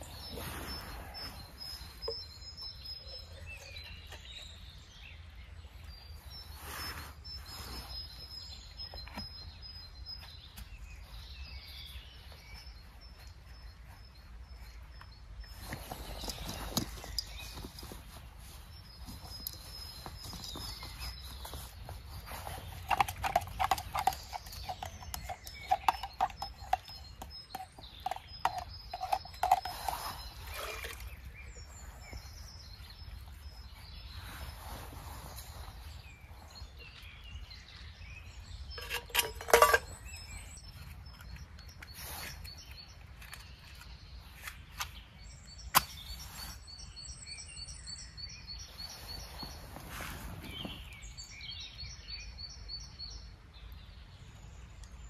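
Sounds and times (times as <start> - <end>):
birds chirping: 0.0 - 55.0
knocks and clinks: 38.8 - 40.1.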